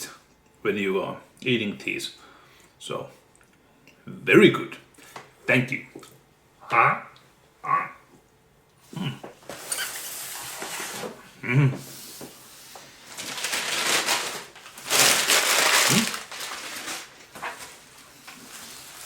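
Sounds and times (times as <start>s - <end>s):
wrapping paper rustling and crinkling: 9.4s - 11.2s, 11.9s - 19.0s.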